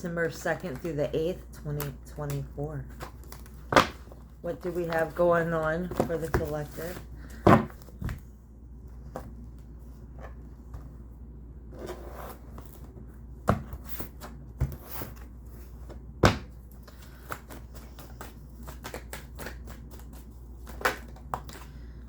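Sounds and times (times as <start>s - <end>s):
cards being shuffled: 16.7s - 21.8s.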